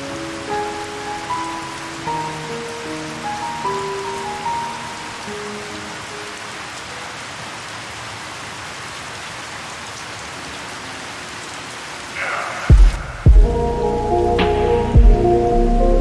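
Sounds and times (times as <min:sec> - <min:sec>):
steady rain falling: 0:00.0 - 0:16.0
loud low boom: 0:12.7 - 0:13.8, 0:14.4 - 0:15.4.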